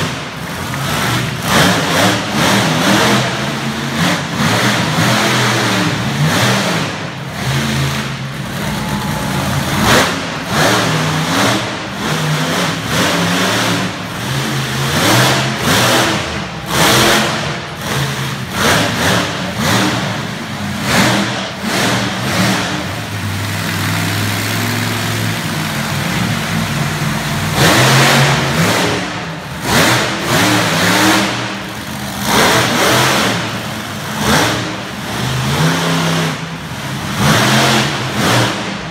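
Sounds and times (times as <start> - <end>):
truck engine revving hard: 0.0 - 38.9.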